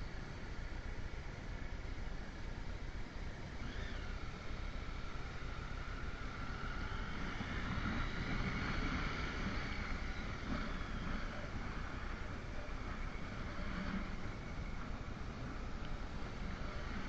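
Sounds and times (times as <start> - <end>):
wind on microphone: 6.3 - 17.0.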